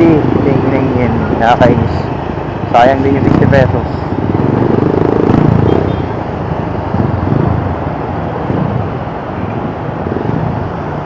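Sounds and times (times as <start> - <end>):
road and traffic noise: 0.0 - 11.0
motorcycle engine running: 4.0 - 7.6.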